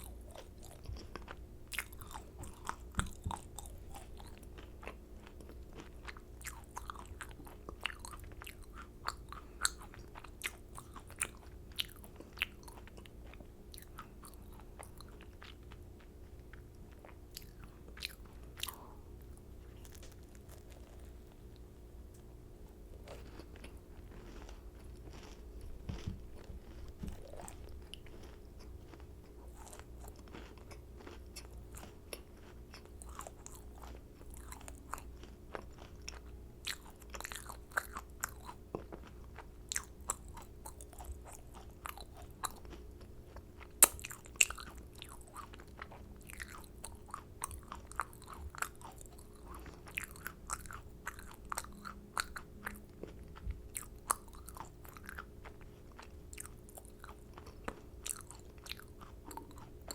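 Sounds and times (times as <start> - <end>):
macaron shells crunching: 19.7 - 21.3, 23.0 - 52.4.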